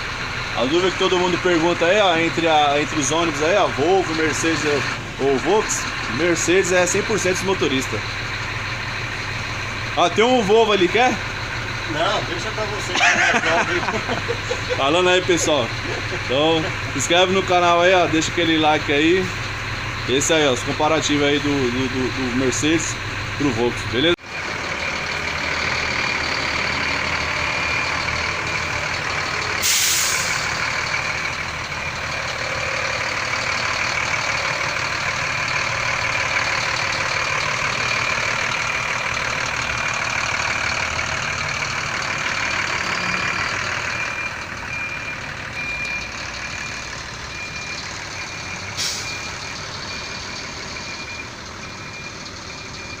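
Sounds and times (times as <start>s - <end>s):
bus diesel engine running: 0.0s - 53.0s
air hisses: 29.6s - 30.4s.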